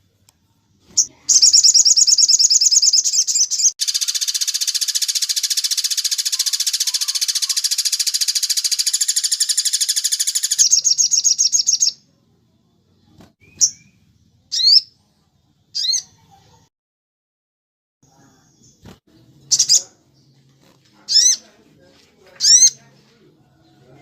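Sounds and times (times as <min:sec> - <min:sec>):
sharp bird calls: 0:00.9 - 0:12.0, 0:13.4 - 0:14.9, 0:19.5 - 0:20.0, 0:21.1 - 0:21.5
rapid high bird trill: 0:01.0 - 0:12.0, 0:21.1 - 0:21.4.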